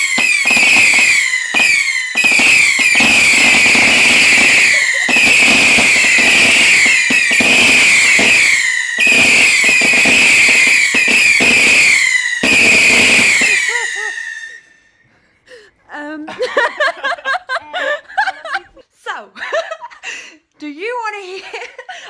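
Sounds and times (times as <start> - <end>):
firework crackle: 0.0 - 14.8
firework whistles falling in pitch: 0.0 - 15.0.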